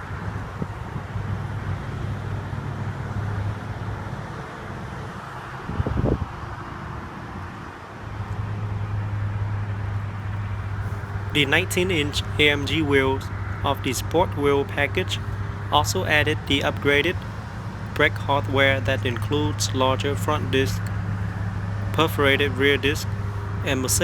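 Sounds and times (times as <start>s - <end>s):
wind noise on microphone: 5.6s - 7.6s
steady low hum: 10.1s - 24.0s.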